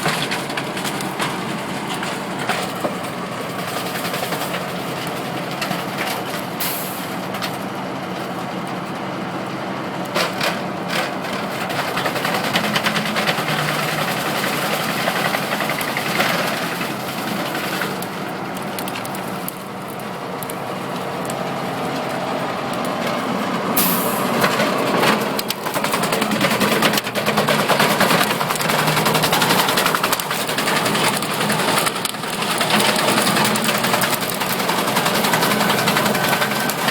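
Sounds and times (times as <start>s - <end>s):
wood chipper running: 0.0s - 36.9s.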